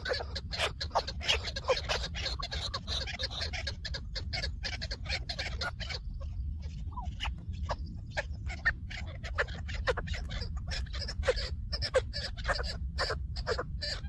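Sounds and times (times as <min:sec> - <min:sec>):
low rumble: 0:04.0 - 0:12.1.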